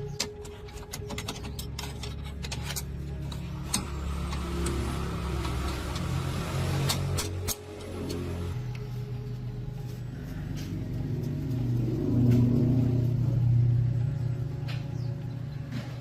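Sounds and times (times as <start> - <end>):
truck engine humming: 0.0 - 16.0.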